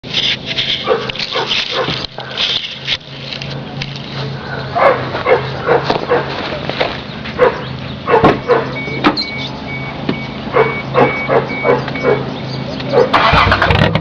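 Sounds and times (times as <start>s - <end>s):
dog barking: 0.8s - 2.5s, 4.2s - 6.4s, 7.4s - 8.8s, 10.5s - 12.3s, 12.9s - 13.2s
electronic beeping: 8.7s - 12.9s.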